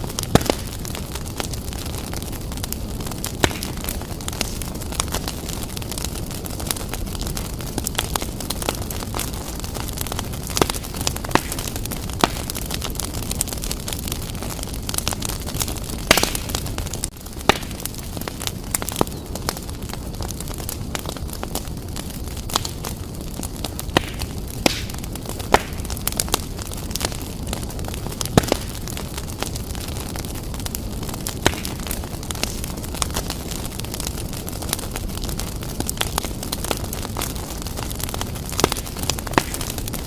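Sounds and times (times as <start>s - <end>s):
low rumble of flames: 0.0s - 40.0s
wood fire crackling and popping: 0.0s - 40.0s.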